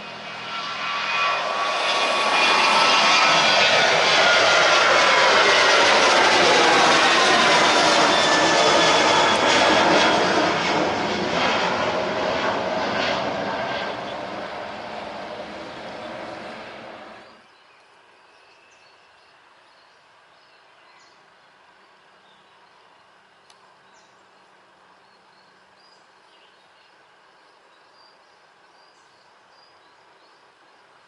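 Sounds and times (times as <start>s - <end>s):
jet airliner engines roaring: 0.0s - 17.5s
faint outdoor background: 9.0s - 31.0s.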